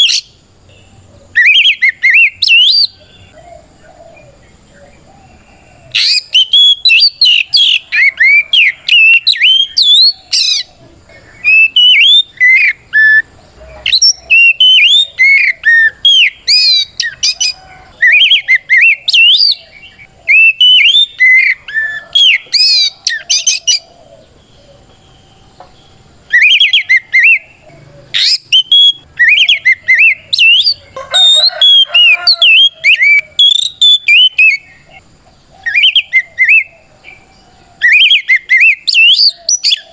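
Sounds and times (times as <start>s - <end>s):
songbird whistles and trills: 0.0s - 39.9s.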